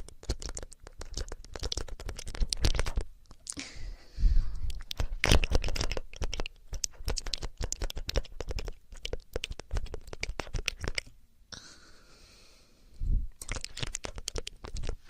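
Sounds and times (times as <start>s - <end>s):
ear cleaning scratching and clicks: 0.0s - 3.4s, 4.7s - 11.1s, 13.4s - 15.0s.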